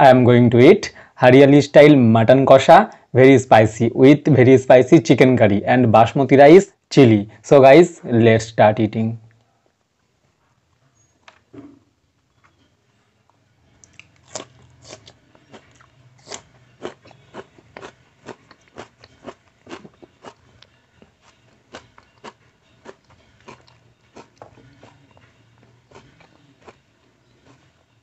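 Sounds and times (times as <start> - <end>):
crunchy chewing: 12.3 - 28.0.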